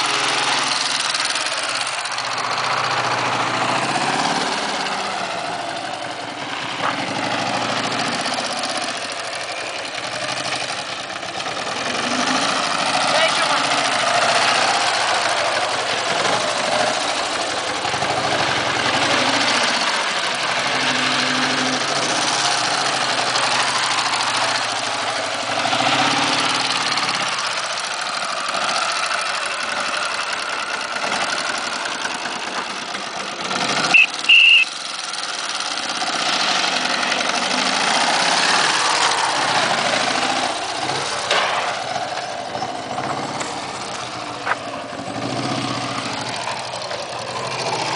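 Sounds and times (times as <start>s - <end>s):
motorcycle engine running: 0.0s - 47.9s
high-pitched squeal: 33.8s - 34.7s.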